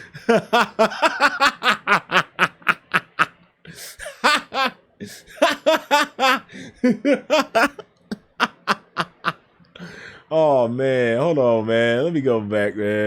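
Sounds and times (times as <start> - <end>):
man laughing hard: 0.0 - 9.4.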